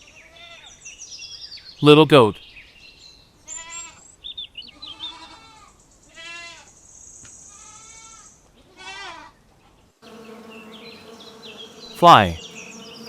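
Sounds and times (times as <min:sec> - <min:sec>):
goat kid bleating: 0:03.5 - 0:04.0, 0:04.7 - 0:06.7, 0:07.5 - 0:09.4.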